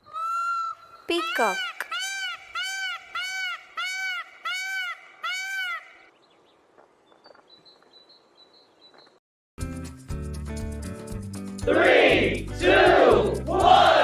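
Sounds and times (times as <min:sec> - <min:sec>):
peacock calling: 0:00.0 - 0:06.2
music: 0:09.6 - 0:14.0.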